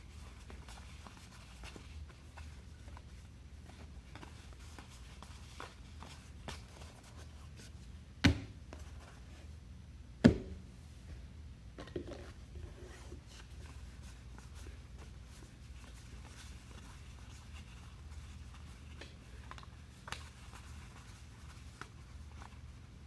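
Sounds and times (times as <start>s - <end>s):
cards rustling and ticking: 13.4s - 23.0s.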